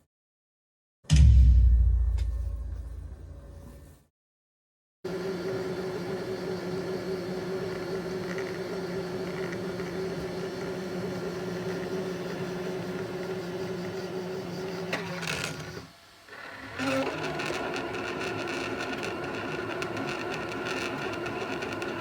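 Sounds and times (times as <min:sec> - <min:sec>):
printer motor hum with whine: 0:05.1 - 0:22.0.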